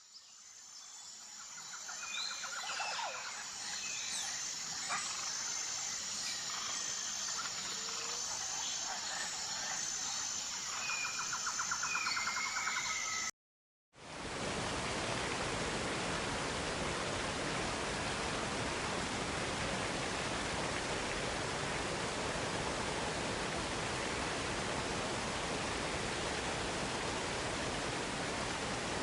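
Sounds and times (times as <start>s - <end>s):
high-pitched insect drone: 0.2s - 13.3s.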